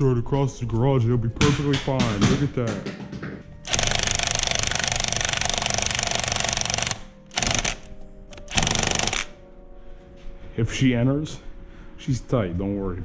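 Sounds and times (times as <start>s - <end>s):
power tool hammering rattle: 1.5s - 9.3s.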